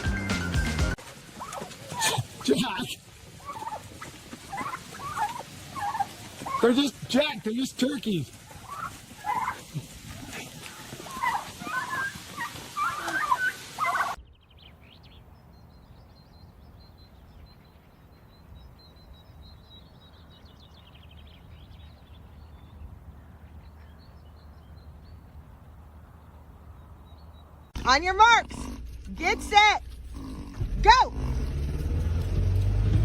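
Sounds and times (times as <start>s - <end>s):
turkeys gobbling: 0.0s - 14.2s.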